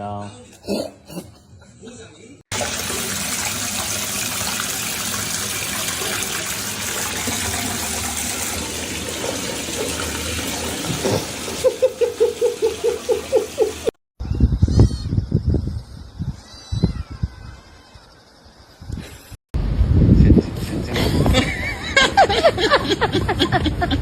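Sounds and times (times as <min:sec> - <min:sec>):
water running from a tap: 0:02.5 - 0:13.9.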